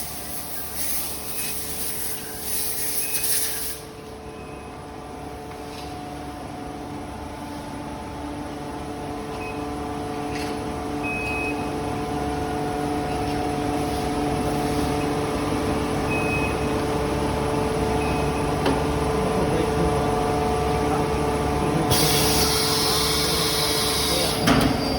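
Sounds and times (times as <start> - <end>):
compressed air hissing: 0.0 - 3.9, 21.9 - 24.4
factory machinery humming: 6.2 - 24.9.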